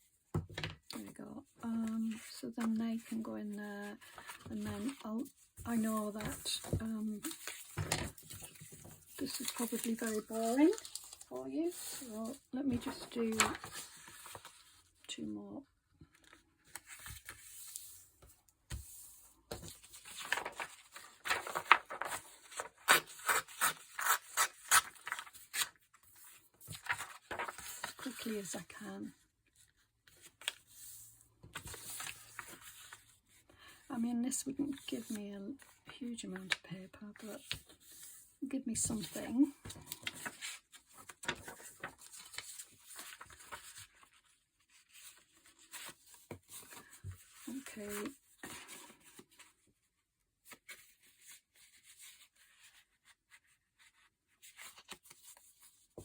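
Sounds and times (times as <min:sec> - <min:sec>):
paper rustling and scraping: 0:03.9 - 0:14.9, 0:16.2 - 0:28.6, 0:30.1 - 0:33.2, 0:38.9 - 0:49.6.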